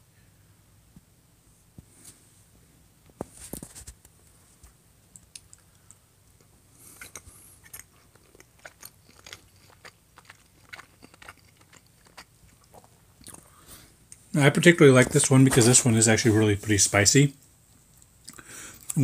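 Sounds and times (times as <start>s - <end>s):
wet mouth chewing clicks: 6.8s - 13.5s.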